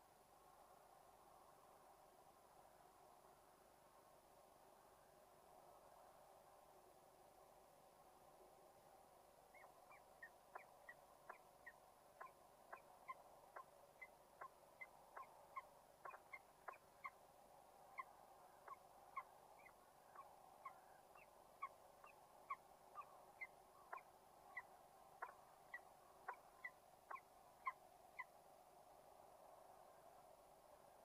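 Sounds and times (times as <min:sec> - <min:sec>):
faint steady hum: 0:00.0 - 0:31.0
bird chirping: 0:09.5 - 0:17.2, 0:17.8 - 0:28.4.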